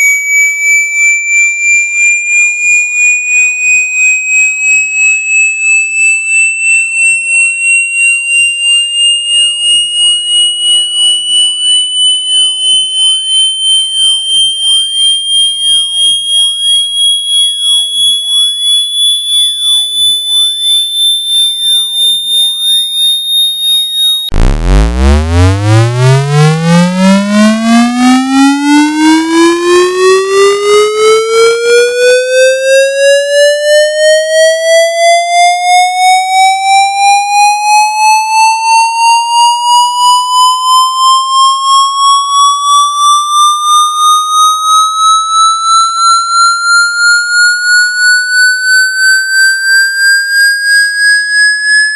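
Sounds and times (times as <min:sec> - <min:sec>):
pulsing high electronic tone: 0:09.3 - 0:32.3, 0:39.0 - 0:51.9
pulsing buzzy tone sweeping up: 0:23.9 - 0:32.7, 0:39.6 - 0:51.9.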